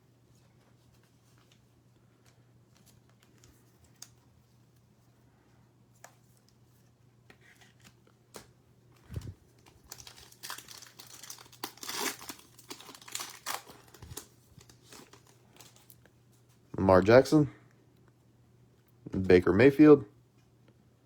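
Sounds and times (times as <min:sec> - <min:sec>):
plastic wrapper crinkling and tearing: 0:09.0 - 0:16.0.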